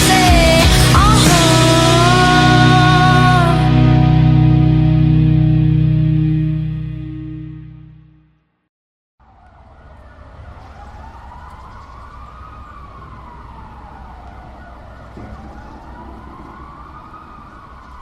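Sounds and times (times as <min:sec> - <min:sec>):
emergency siren wailing: 0:00.0 - 0:06.2, 0:09.2 - 0:18.0
street traffic rumble: 0:09.2 - 0:18.0.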